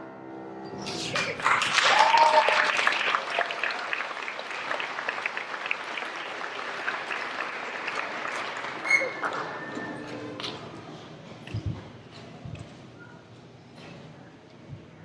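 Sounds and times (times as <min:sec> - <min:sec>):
audience applauding: 0:00.9 - 0:09.7.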